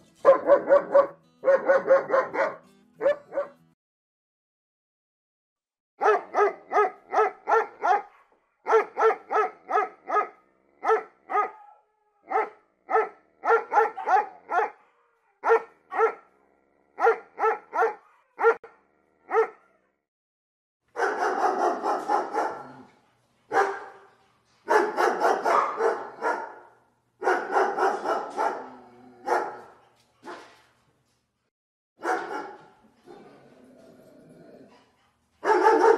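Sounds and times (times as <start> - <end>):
dog barking: 0.2 - 3.6, 6.0 - 16.4, 17.0 - 19.8, 20.9 - 22.9, 23.5 - 30.6, 32.0 - 32.8, 35.4 - 35.9.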